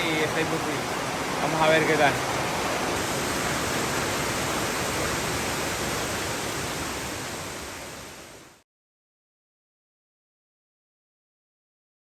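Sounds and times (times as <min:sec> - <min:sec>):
waterfall roaring: 0:00.0 - 0:08.6.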